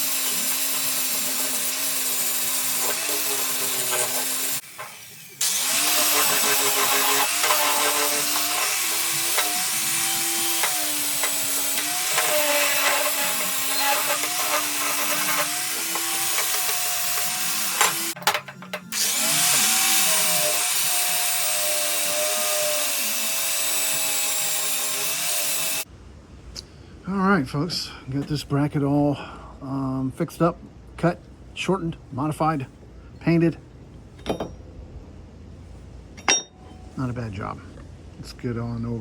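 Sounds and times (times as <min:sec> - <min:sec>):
power grinder grinding metal: 0:00.0 - 0:25.8.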